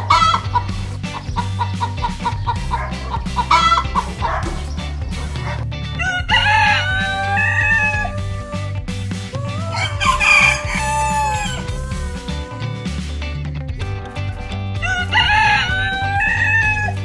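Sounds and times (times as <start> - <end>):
hen clucks: 0.0 - 8.0
background music: 0.0 - 17.0
rooster crowing: 6.0 - 8.6, 9.4 - 12.6, 14.8 - 17.0.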